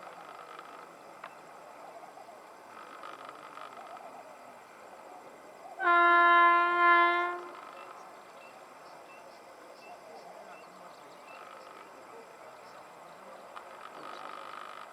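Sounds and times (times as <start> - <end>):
locomotive air horn blast: 5.8 - 7.7.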